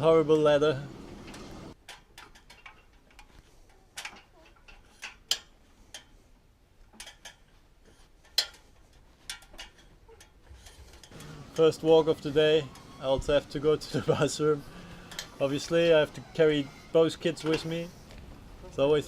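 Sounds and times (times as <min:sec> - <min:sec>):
clicks and knocks on ladder: 0:01.3 - 0:06.1.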